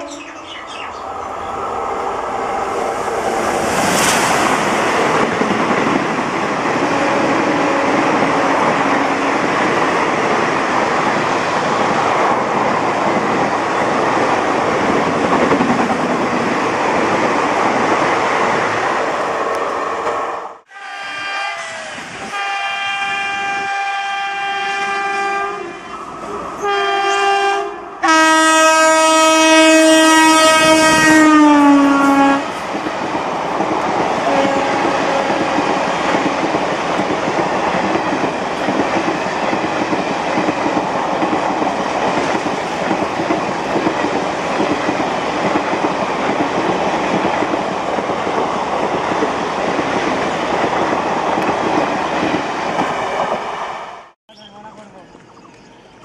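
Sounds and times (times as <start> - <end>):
passenger coaches rumbling and clattering: 0.0 - 20.3, 32.4 - 53.6
locomotive horn blasts: 20.7 - 25.8, 26.6 - 32.5, 34.2 - 35.7.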